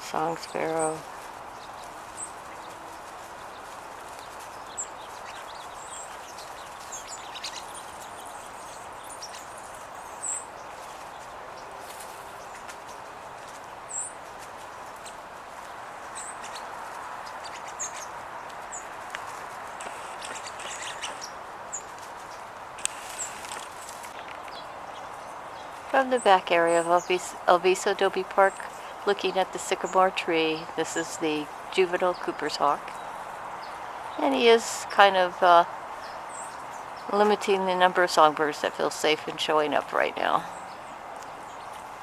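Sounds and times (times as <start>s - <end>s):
outdoor background noise: 0.0s - 42.0s
sparrows chipping: 0.0s - 42.0s.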